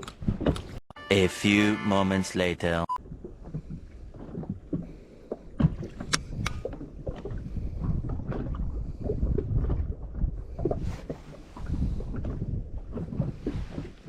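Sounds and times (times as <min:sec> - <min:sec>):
water sloshing against boat hull: 0:00.0 - 0:00.8, 0:03.0 - 0:14.0
wind buffeting microphone: 0:03.0 - 0:14.0.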